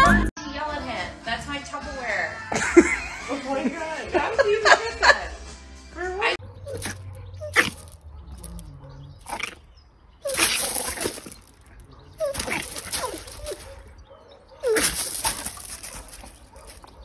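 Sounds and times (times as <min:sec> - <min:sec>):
puppy yapping: 0:06.4 - 0:17.0
scuffling on gravel: 0:06.6 - 0:14.0, 0:14.6 - 0:17.0.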